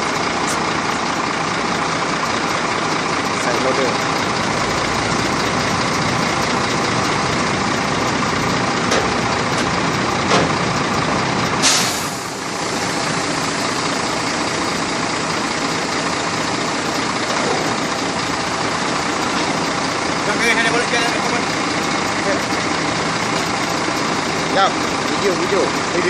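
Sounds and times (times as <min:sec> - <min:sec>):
truck diesel engine running: 0:00.0 - 0:26.0
air brakes hissing: 0:11.6 - 0:14.0.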